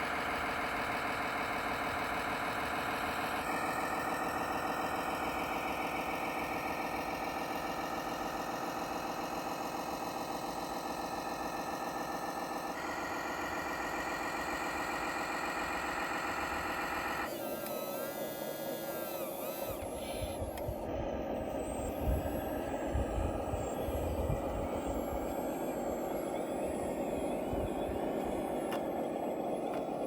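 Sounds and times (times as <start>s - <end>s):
electronic diesel engine sound: 0.0s - 30.0s
wavering electronic tone: 21.2s - 30.0s.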